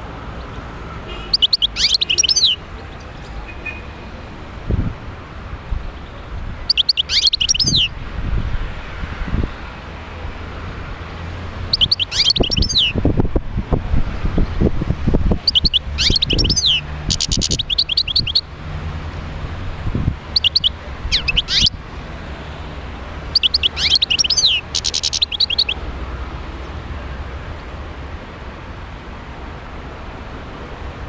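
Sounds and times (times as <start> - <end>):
bird twittering chirps and trills: 0.4 - 3.9, 5.8 - 8.6, 11.6 - 13.4, 14.0 - 18.5, 19.9 - 21.8, 23.3 - 25.8.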